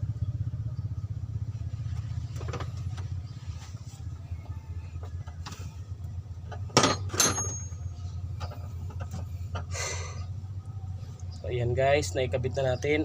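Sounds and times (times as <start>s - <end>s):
low engine-like hum: 0.0s - 13.0s
sharp metallic clanks: 6.5s - 9.7s.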